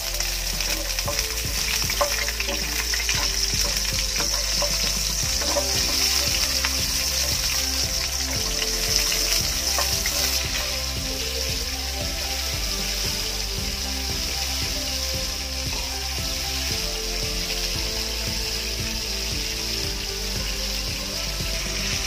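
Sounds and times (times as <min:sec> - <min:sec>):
garlic and onion sizzling in oil: 0:00.0 - 0:22.0
spatula scraping and tapping a pan: 0:00.5 - 0:10.8.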